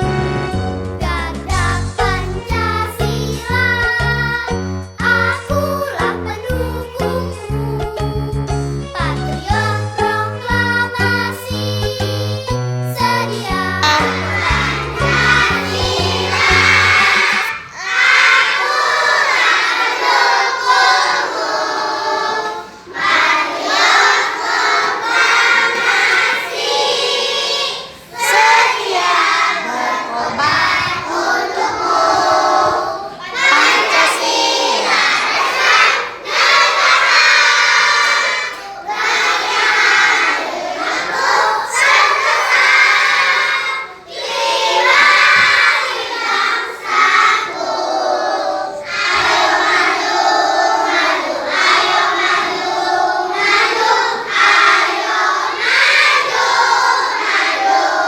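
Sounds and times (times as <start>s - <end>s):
children's music: 0.0s - 58.0s
children's voices: 1.5s - 4.5s, 13.3s - 58.0s.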